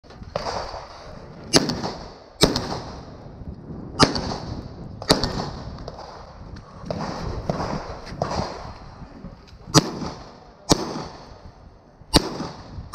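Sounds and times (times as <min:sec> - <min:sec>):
gunshots with echo: 0:00.3 - 0:03.2, 0:04.0 - 0:08.7, 0:09.7 - 0:11.4, 0:12.1 - 0:12.8.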